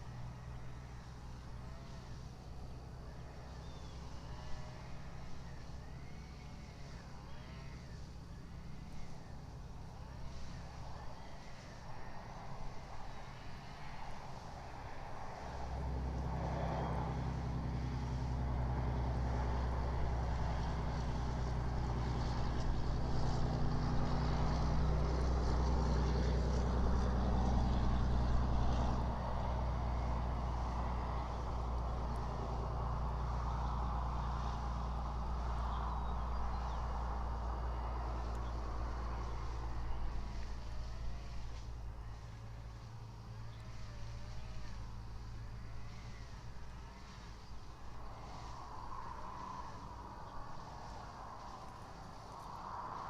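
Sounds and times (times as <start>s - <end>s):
vehicle engine running: 0.0s - 53.0s.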